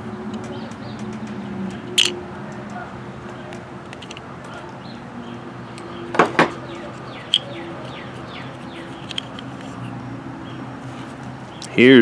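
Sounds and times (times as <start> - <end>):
small birds chirping: 0.0 - 12.0
quick knocks: 6.1 - 6.6.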